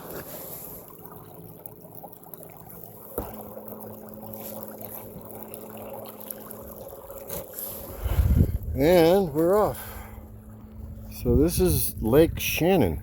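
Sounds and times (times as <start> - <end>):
water sloshing against hull: 0.0 - 12.8
steady low hum: 0.0 - 13.0.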